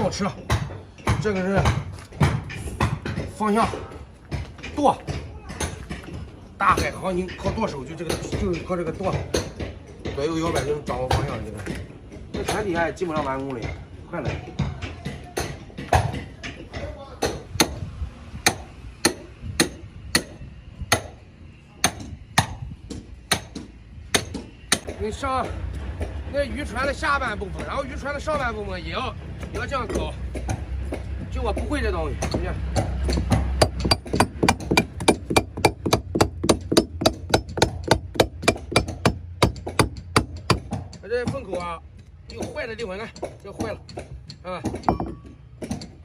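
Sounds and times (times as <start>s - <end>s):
hammer striking wooden hull: 0.0s - 17.8s, 21.8s - 26.2s, 29.4s - 41.7s, 42.3s - 46.0s
hammer striking rhythmically: 29.5s - 45.8s.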